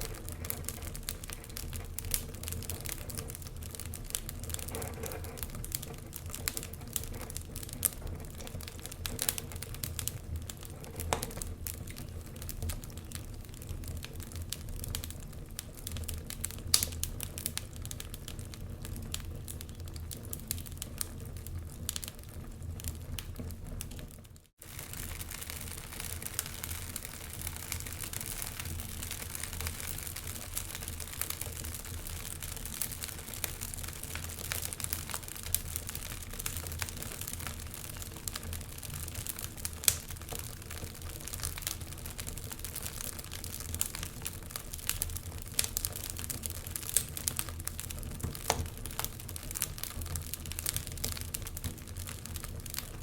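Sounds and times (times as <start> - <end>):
wood fire crackling and popping: 0.0 - 53.0.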